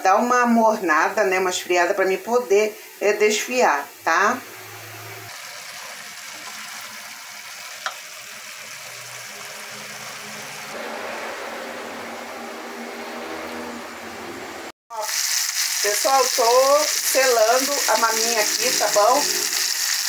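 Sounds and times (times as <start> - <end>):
beef searing in a skillet: 2.0 - 10.8, 14.9 - 20.0
chicken sizzling in a pan: 2.1 - 10.8, 14.9 - 20.0.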